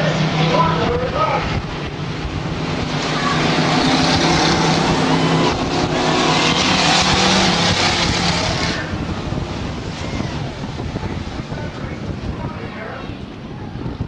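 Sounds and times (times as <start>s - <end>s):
truck engines racing: 0.0s - 14.0s.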